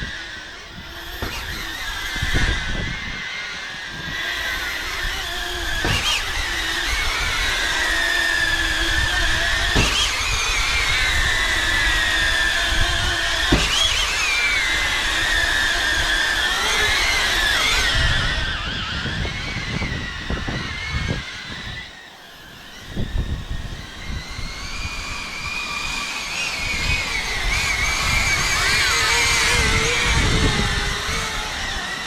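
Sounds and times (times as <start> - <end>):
drone propellers whining: 0.0 - 32.0
short knocks: 5.7 - 6.6, 9.6 - 10.4.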